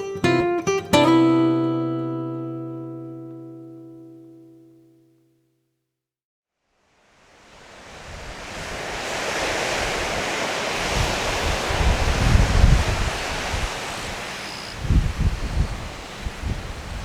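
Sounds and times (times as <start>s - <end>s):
ocean surf: 6.8s - 17.0s
wind gusts buffeting microphone: 7.4s - 17.0s.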